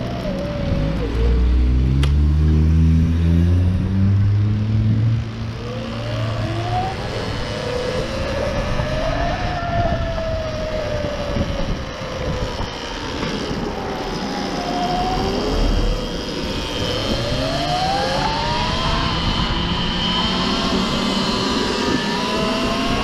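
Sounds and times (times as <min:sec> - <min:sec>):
electric motorcycle motor whine: 0:00.0 - 0:23.0
road rumble: 0:00.0 - 0:23.0
wind on microphone: 0:06.4 - 0:23.0.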